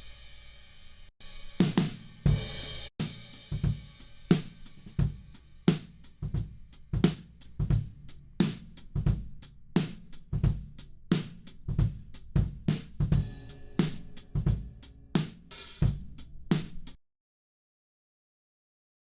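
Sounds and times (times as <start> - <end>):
acoustic drum kit groove: 1.2 - 17.0.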